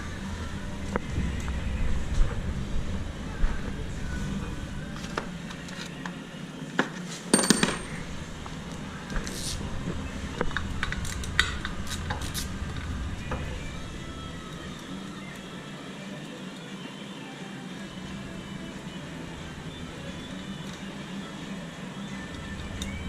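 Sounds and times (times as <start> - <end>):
metal tools clinking: 7.3 - 8.0.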